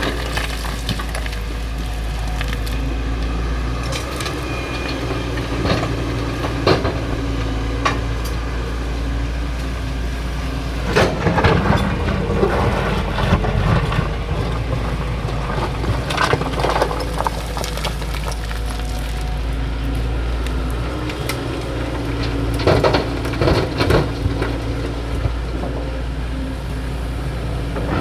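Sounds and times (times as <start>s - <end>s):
excavator engine running: 0.0s - 28.0s
material cracking and crunching: 15.7s - 19.5s.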